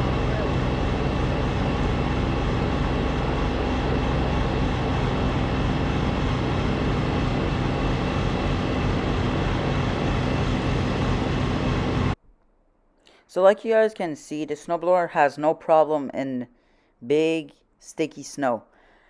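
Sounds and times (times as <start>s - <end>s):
snowblower engine running: 0.0s - 12.2s.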